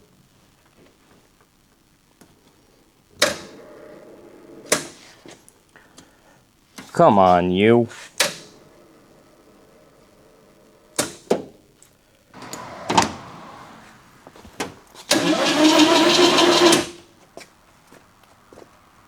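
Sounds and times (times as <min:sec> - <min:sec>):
starter motor clicks: 0:12.4 - 0:14.0, 0:15.0 - 0:17.0
engine cranking: 0:12.4 - 0:17.1.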